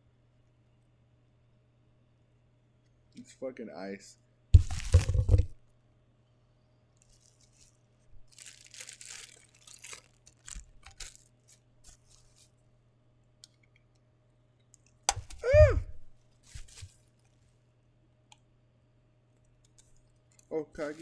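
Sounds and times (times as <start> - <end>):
packaging crinkling and tearing: 4.6 - 5.6, 7.1 - 12.5, 15.1 - 17.0, 20.8 - 21.0.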